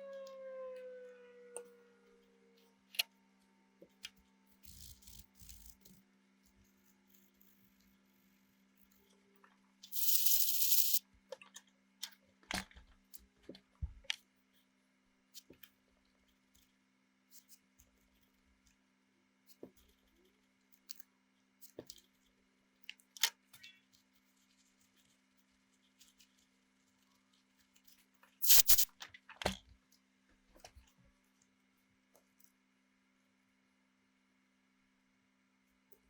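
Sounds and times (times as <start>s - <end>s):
small parts and tools clicking: 3.8s - 8.0s, 8.8s - 14.7s, 19.5s - 31.5s
aerosol spray hiss: 9.9s - 11.0s, 28.4s - 28.9s.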